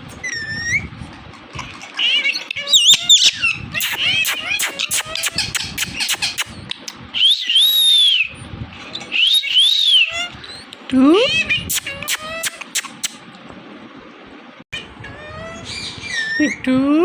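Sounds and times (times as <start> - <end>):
parakeet chattering: 2.0 - 8.3, 9.1 - 13.2
long whistled bird calls: 7.2 - 8.3.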